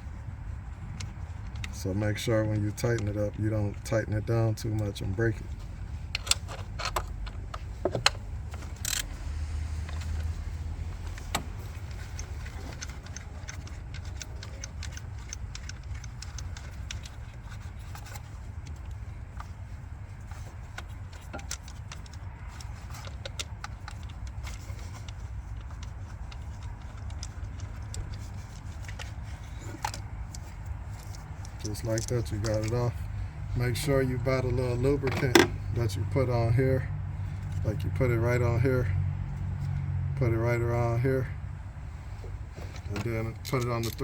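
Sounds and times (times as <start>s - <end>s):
socket wrench clicking: 6.1s - 9.2s.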